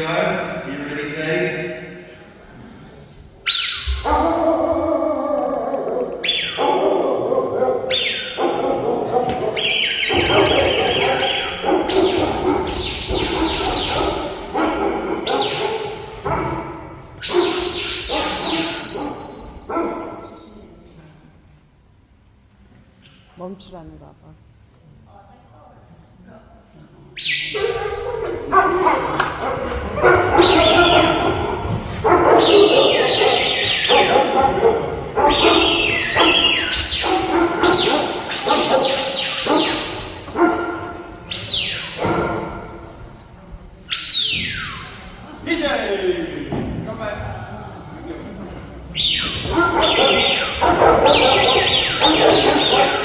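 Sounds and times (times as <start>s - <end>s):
dog barking: 6.2s - 20.5s, 27.5s - 42.8s, 49.2s - 53.0s.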